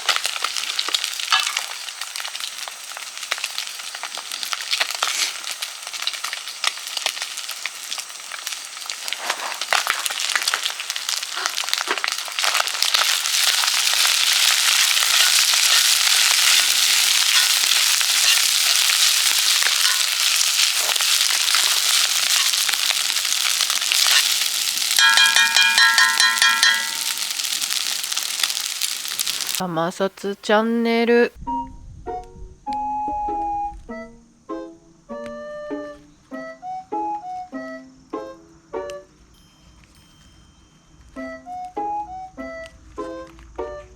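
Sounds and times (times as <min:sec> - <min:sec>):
food sizzling in a frying pan: 0:00.0 - 0:29.7.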